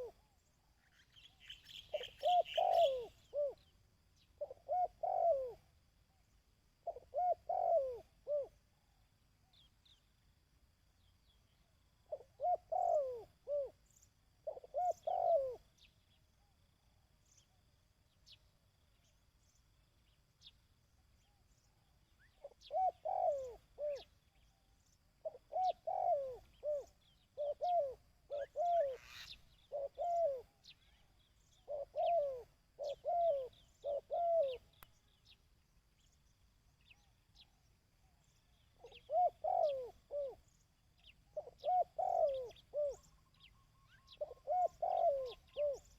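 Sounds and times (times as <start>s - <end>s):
dove cooing: 0.0s - 0.3s, 1.7s - 3.7s, 4.4s - 5.8s, 6.8s - 8.6s, 12.0s - 15.9s, 22.2s - 24.4s, 25.2s - 34.8s, 38.2s - 45.9s
small birds chirping: 0.0s - 8.6s, 17.2s - 45.9s.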